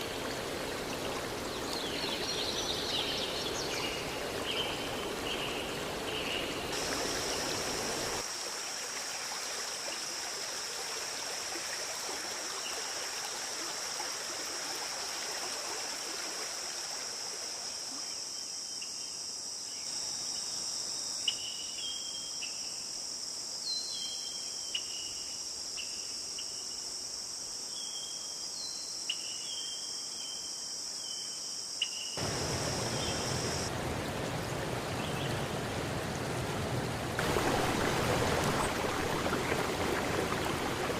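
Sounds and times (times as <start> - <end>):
stream water flowing: 0.0 - 18.3, 32.2 - 40.9
crickets trilling: 0.0 - 36.2, 37.2 - 40.9.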